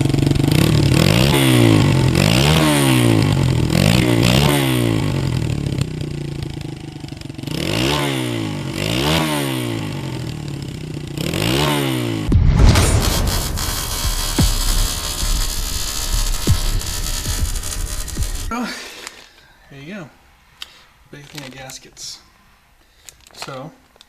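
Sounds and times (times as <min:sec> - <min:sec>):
motorcycle engine revving: 0:00.0 - 0:18.7
short low rumble: 0:12.3 - 0:18.5.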